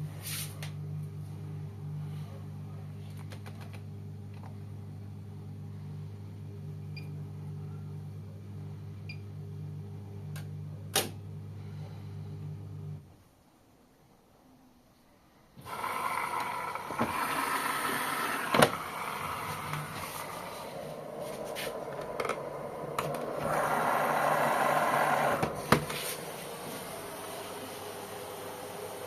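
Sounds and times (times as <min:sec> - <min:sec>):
water hissing into washing machine: 0:15.6 - 0:29.0.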